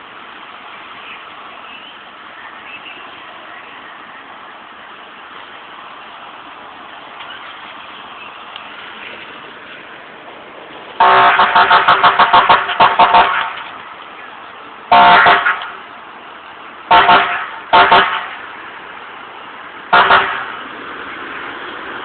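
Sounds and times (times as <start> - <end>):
traffic noise: 0.0 - 22.0
vehicle horn honking: 11.0 - 13.6, 14.9 - 15.8, 16.9 - 18.4, 19.9 - 20.5.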